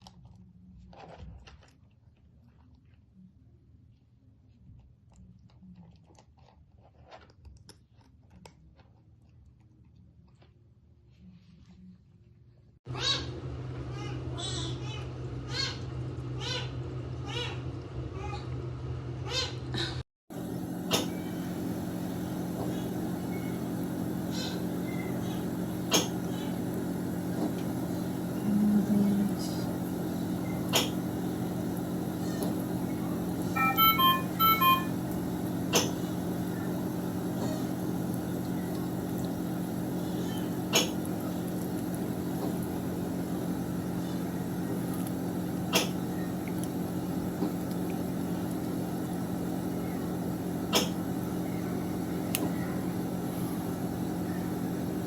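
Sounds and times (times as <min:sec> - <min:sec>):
low machine hum: 0:12.9 - 0:55.0
brief low tone: 0:33.6 - 0:35.1.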